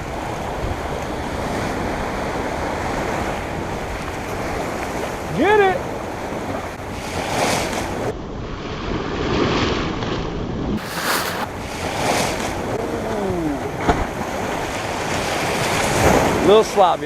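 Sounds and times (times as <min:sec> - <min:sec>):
ocean surf on shore: 0:10.8 - 0:17.0.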